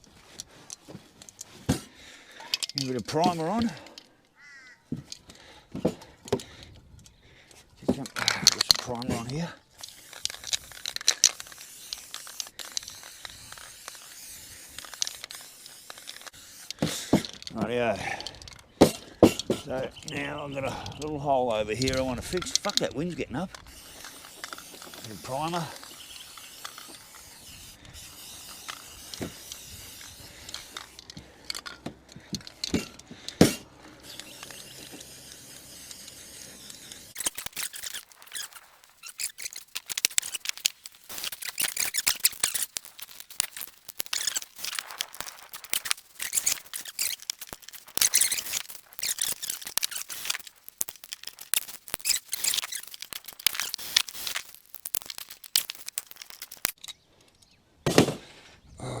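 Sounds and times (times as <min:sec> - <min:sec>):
scattered clicks: 0:02.2 - 0:04.1, 0:06.3 - 0:56.9
paintbrush scratching: 0:34.5 - 0:56.8.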